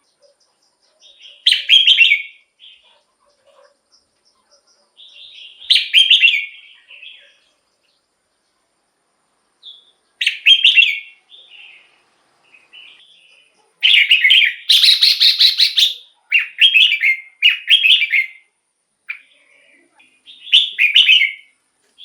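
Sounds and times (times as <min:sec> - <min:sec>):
bird singing: 0:00.0 - 0:08.6, 0:09.6 - 0:22.0.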